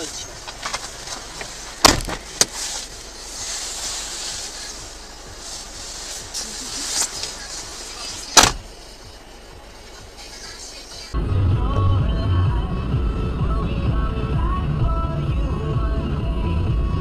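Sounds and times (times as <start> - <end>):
car road and wind noise: 0.0 - 17.0
loud sharp bang: 8.4 - 8.7.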